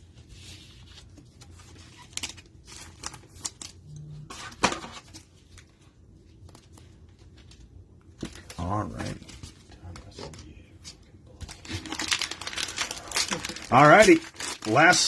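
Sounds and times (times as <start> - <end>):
cards and wrapping rustling: 0.0 - 15.0.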